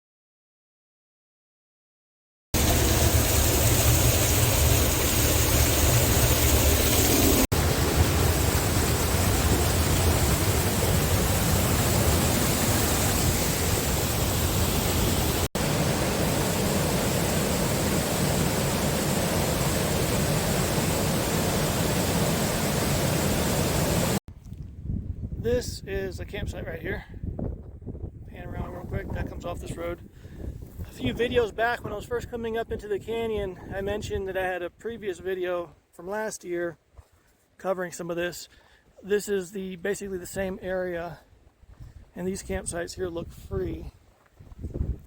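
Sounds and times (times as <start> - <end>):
waterfall rushing: 2.6 - 24.2.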